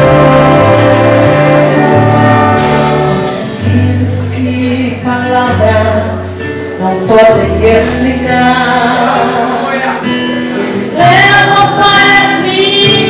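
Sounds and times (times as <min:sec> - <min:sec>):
orchestra with brass playing: 0:00.0 - 0:04.3.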